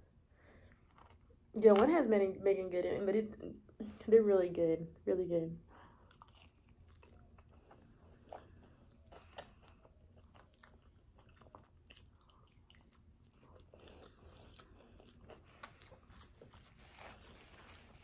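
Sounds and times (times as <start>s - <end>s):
chewing and biting food: 6.0s - 17.5s.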